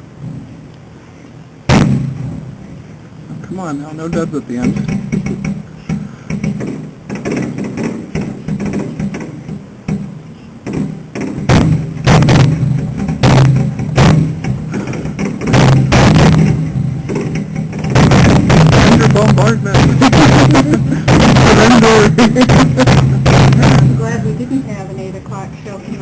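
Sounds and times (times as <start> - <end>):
fireworks shells bursting: 4.1 - 24.4.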